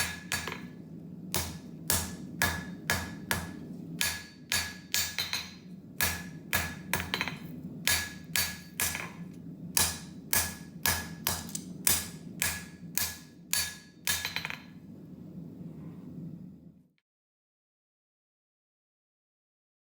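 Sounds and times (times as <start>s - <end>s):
hammer striking hot steel: 0.0s - 14.7s
steady low hum: 0.0s - 17.0s.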